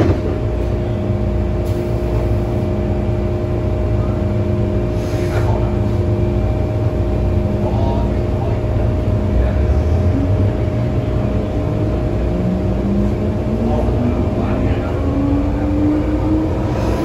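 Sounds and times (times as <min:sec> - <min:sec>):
train electrical hum: 0:00.0 - 0:17.0
low rumble: 0:06.0 - 0:17.0.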